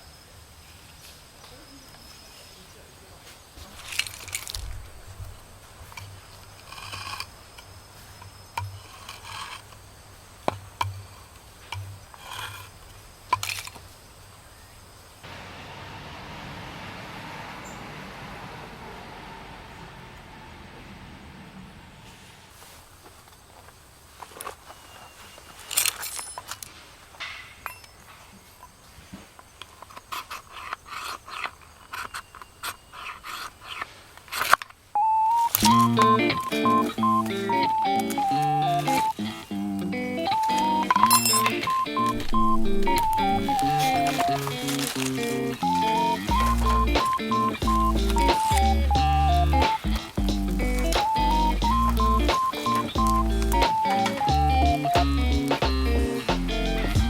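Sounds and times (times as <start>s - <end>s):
sharp clicks: 40.2s - 57.0s
short steady tone: 40.3s - 44.4s
objects being handled: 40.3s - 48.8s.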